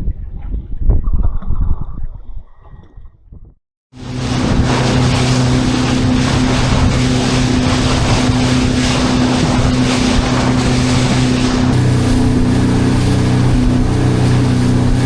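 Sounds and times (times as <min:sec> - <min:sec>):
heavy wind: 0:00.0 - 0:15.0
boat engine humming: 0:04.0 - 0:15.0
water rushing past: 0:04.0 - 0:15.0.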